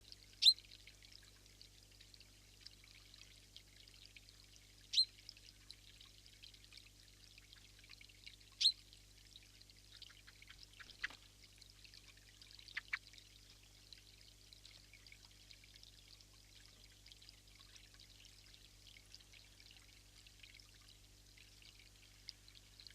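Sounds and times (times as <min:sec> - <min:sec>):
faint ticks: 0:09.4 - 0:22.9.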